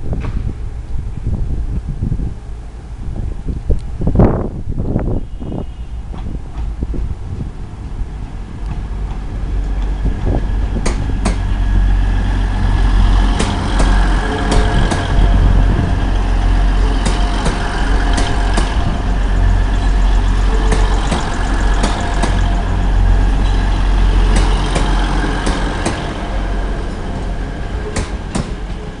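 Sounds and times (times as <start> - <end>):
diesel engine drone: 5.8 - 29.0
train wheels clicking over rail joint: 8.6 - 11.6, 12.3 - 15.2, 16.9 - 18.9, 20.4 - 26.2, 27.8 - 29.0.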